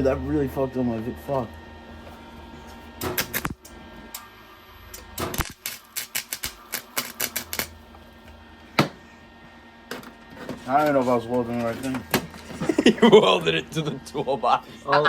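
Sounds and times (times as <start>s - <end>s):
welding arc crackling: 2.9s - 3.8s, 4.9s - 7.8s.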